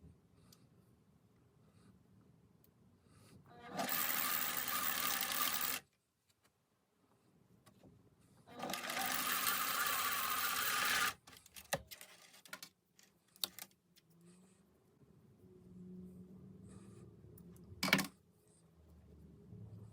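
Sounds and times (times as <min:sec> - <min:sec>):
sewing machine stitching: 0:03.6 - 0:05.8, 0:08.6 - 0:11.2.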